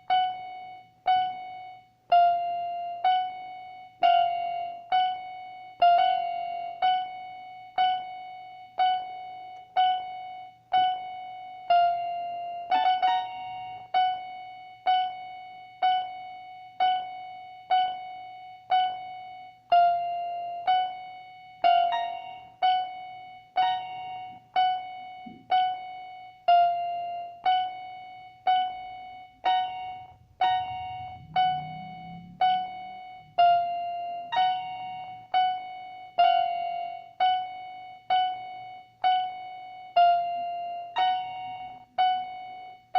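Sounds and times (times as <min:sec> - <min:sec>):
repeated keyboard piano note: 0:00.0 - 0:42.9
higher keyboard note: 0:28.4 - 0:37.6.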